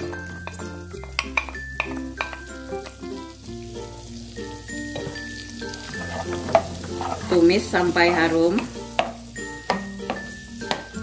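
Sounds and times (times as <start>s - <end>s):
onion sizzling in butter: 0.0s - 11.0s
spatula stirring pan: 5.1s - 11.0s.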